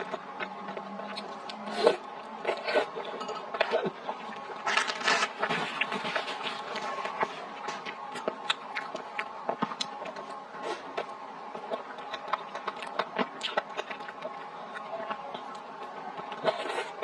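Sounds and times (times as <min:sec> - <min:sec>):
woman chewing and lip smacking: 0:00.0 - 0:01.7, 0:05.8 - 0:17.0
faint steady hum: 0:00.0 - 0:17.0.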